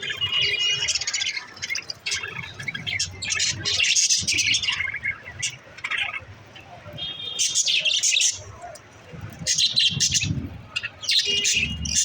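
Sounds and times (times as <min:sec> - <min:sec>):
budgerigars chirping: 0:00.0 - 0:06.3, 0:09.5 - 0:12.0.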